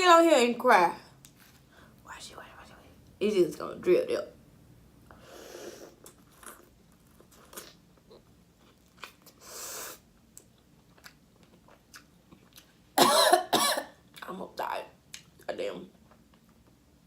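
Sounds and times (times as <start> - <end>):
breathy hiss: 5.1 - 6.0, 9.4 - 10.1
person chewing food: 6.0 - 12.9
person coughing: 13.0 - 14.0.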